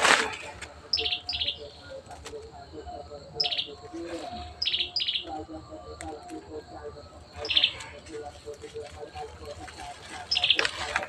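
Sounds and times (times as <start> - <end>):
dry leaves rustling: 0.0 - 0.8, 7.6 - 11.0
bird trilled chirps: 0.8 - 2.0, 2.8 - 5.4, 7.3 - 8.0, 10.1 - 10.9.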